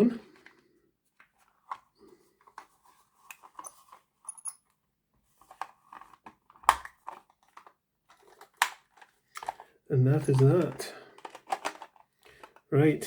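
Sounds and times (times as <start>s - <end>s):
plastic clicks and taps: 8.3s - 9.6s.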